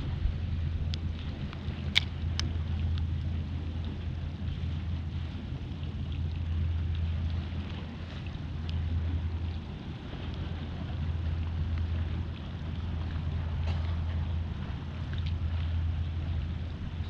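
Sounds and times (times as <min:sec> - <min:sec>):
low drone: 0:00.0 - 0:17.0
water ticking against kayak: 0:00.0 - 0:17.0
wind on microphone: 0:00.0 - 0:17.0.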